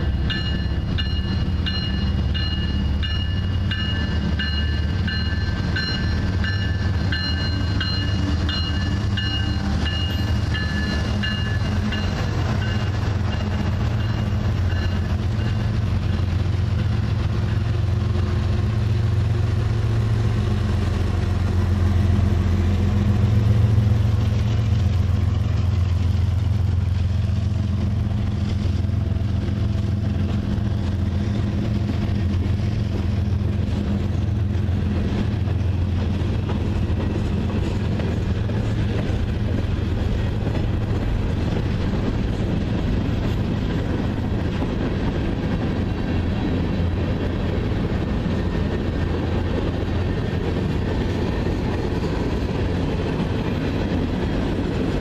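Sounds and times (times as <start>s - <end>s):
diesel locomotives passing: 0.0s - 55.0s
rumble of wheels on rail: 0.0s - 55.0s.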